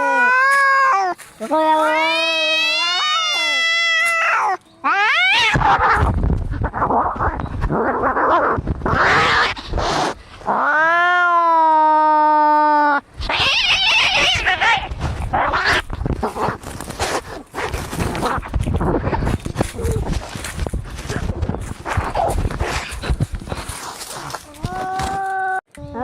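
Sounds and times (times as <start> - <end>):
cat yowling: 0.0 - 6.0, 10.6 - 15.8
cats hissing and growling: 0.0 - 25.2.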